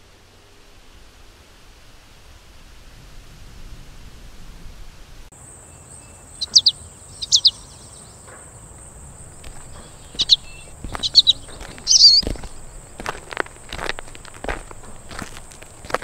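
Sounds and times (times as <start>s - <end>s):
songbird chirping: 5.3s - 16.0s
high insect buzz: 5.4s - 16.0s
soft low thuds: 9.1s - 16.0s.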